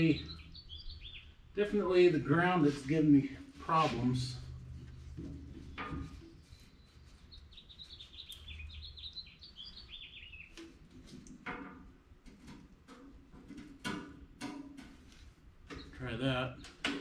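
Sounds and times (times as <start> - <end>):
songbird chirping: 0.0 - 11.4, 15.6 - 17.0.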